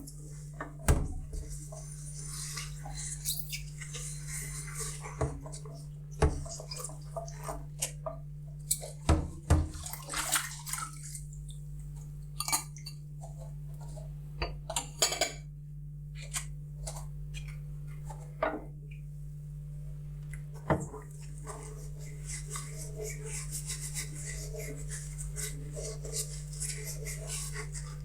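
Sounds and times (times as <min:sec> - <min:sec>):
water splashing: 0:09.5 - 0:11.3.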